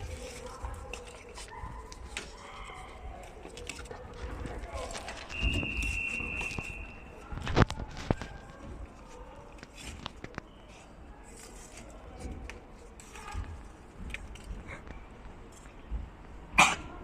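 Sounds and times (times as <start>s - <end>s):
charcoal lumps clicking and knocking: 0.0s - 8.9s
soft rustling: 0.0s - 16.0s.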